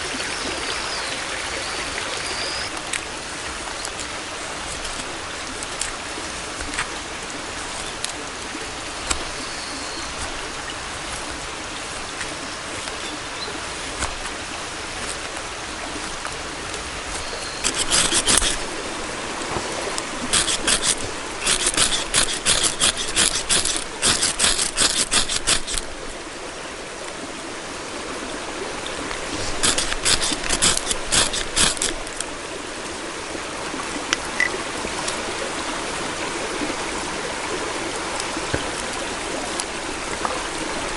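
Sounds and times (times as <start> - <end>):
stream water running: 0.0 - 40.9
sharp scraping strokes: 16.9 - 18.8, 19.5 - 26.0, 29.3 - 32.3.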